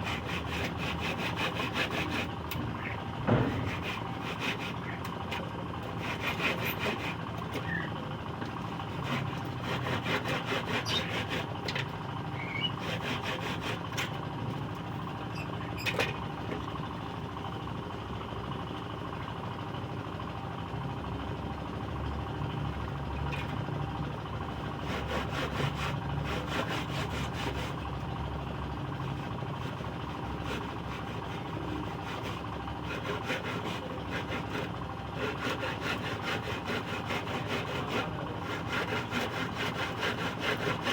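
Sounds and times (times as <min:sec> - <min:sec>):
hand saw cutting wood: 0:00.0 - 0:07.9, 0:08.6 - 0:14.2, 0:15.3 - 0:16.7, 0:24.5 - 0:28.0, 0:29.1 - 0:40.9.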